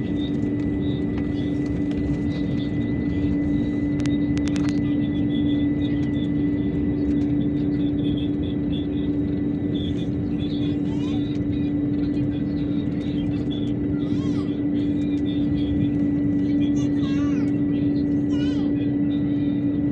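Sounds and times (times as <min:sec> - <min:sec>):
airliner engines rushing: 0:00.0 - 0:19.9.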